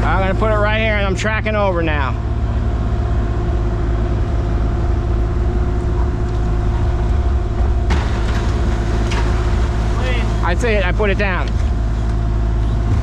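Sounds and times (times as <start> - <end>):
excavator diesel engine drone: 0.0 - 13.0
steady whine: 0.0 - 13.0.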